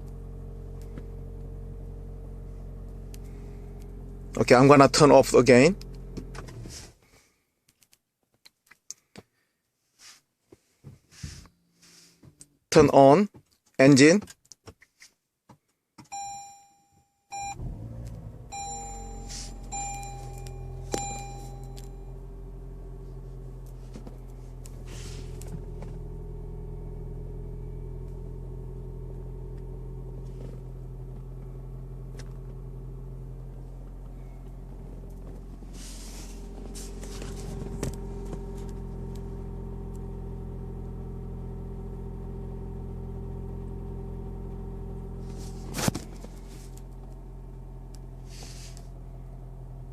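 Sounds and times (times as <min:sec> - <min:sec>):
car engine starting and idling: 0:00.0 - 0:07.0, 0:17.3 - 0:49.9
dashboard warning chime: 0:16.1 - 0:22.3.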